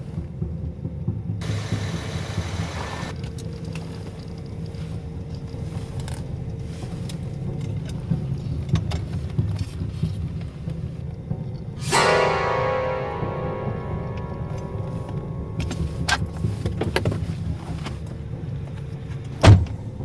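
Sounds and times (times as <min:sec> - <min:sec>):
car engine idling: 0:01.4 - 0:09.3
clicks and knocks of rummaging: 0:03.1 - 0:12.1, 0:14.0 - 0:20.0.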